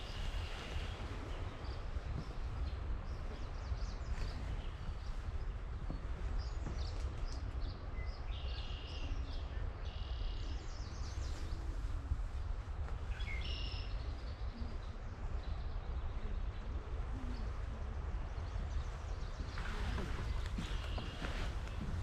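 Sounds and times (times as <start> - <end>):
songbirds singing: 0.0 - 22.0
steady low rumble: 0.0 - 22.0.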